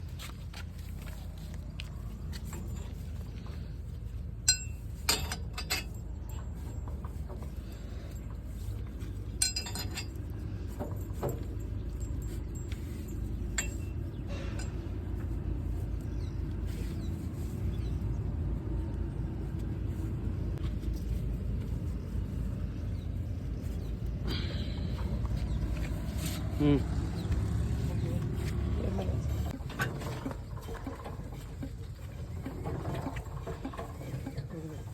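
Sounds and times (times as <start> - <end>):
diesel tractor engine running: 0.0 - 34.9
sharp metallic clinks: 9.3 - 10.2, 10.8 - 14.8.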